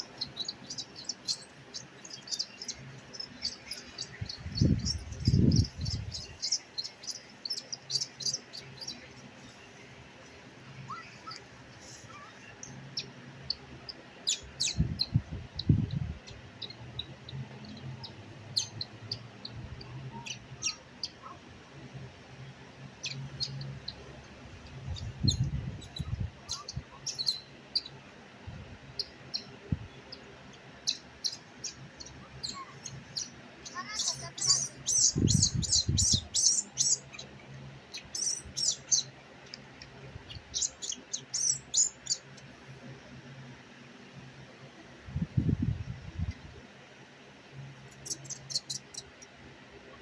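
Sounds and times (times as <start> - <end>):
baby monkey squeaking: 25.2 - 27.4, 32.4 - 37.1.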